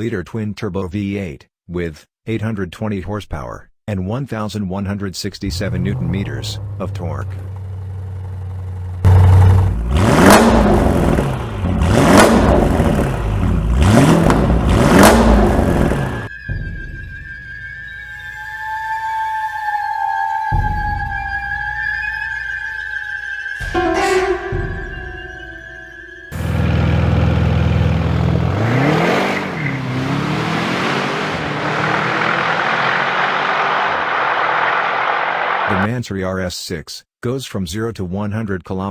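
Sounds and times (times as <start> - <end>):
car engine idling and revving: 5.5 - 16.3, 26.4 - 35.7
music: 16.2 - 27.4.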